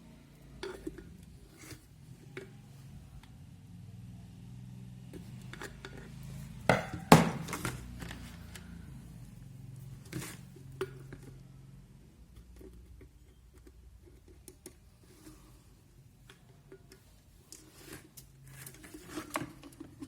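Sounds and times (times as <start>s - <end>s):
sharp loud knocks: 6.7s - 7.5s.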